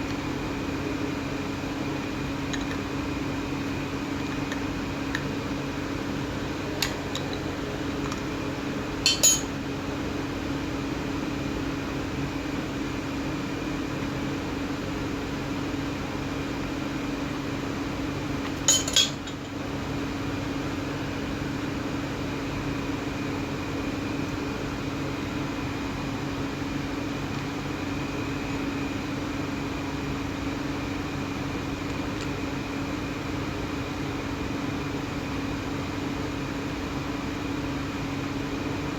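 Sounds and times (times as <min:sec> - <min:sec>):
metallic clinks: 0:09.1 - 0:09.5.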